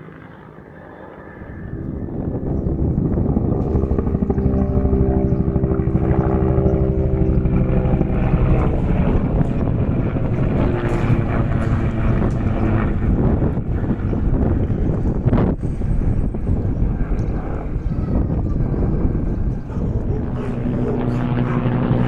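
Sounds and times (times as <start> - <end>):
helicopter rotor beating: 0.0 - 22.0
turbine hum: 0.0 - 22.0.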